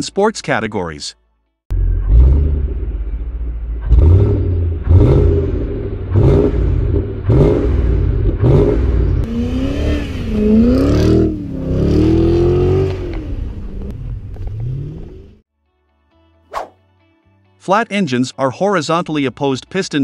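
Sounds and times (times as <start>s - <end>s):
car engine revving: 1.7s - 15.4s.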